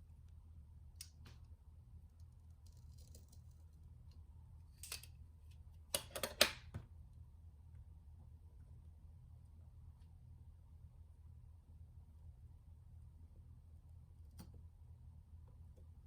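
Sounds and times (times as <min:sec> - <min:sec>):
steady low hum: 0:06.8 - 0:16.0.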